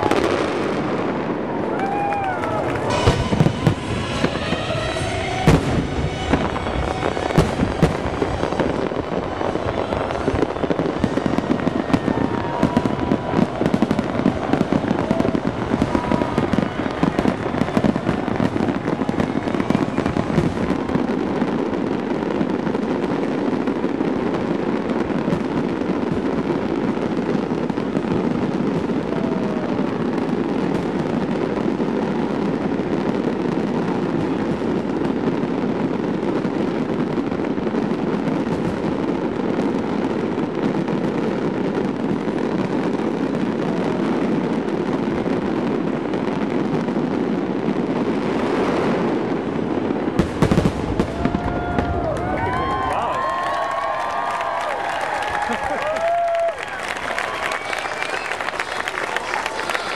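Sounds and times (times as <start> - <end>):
fireworks bangs: 0.0 - 59.9
fireworks crackling: 0.0 - 59.9.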